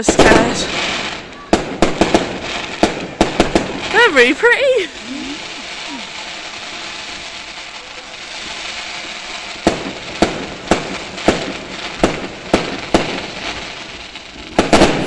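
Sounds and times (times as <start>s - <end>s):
fireworks bangs: 0.0s - 15.0s
steady hiss: 0.0s - 15.0s.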